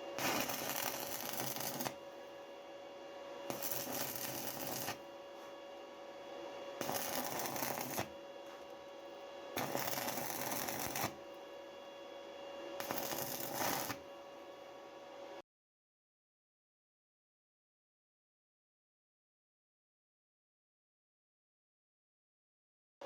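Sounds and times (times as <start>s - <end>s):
scratchy scraping strokes: 0.0s - 2.0s, 3.5s - 5.6s, 6.8s - 8.7s, 9.6s - 11.2s, 12.8s - 14.0s.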